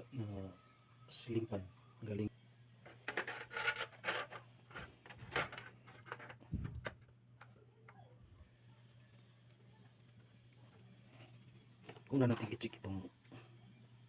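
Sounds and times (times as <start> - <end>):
faint low hum: 0.0 - 14.0
light clicks taps and scrapes: 2.9 - 7.6.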